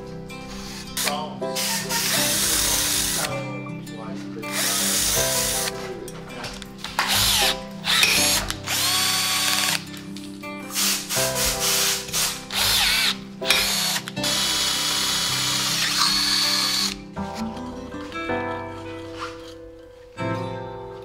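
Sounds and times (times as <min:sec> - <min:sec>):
background music: 0:00.0 - 0:21.0
power drill whining: 0:00.5 - 0:03.4, 0:04.5 - 0:05.7, 0:07.0 - 0:09.9, 0:10.7 - 0:17.0.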